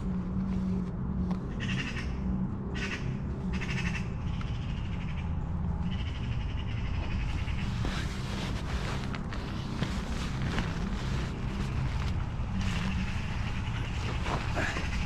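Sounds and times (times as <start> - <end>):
wind rumble on microphone: 0.0 - 15.0
crackles and rustles: 7.2 - 15.0.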